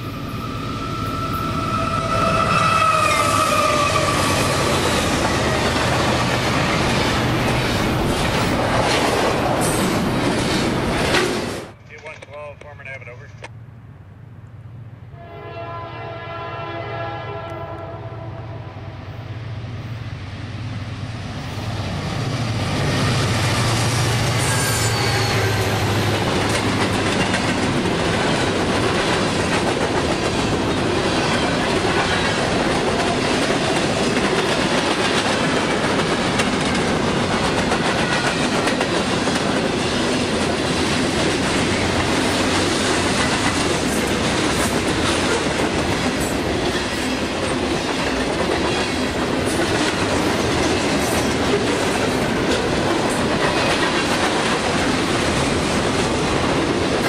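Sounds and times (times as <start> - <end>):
train horn chord: 15.1 - 18.9.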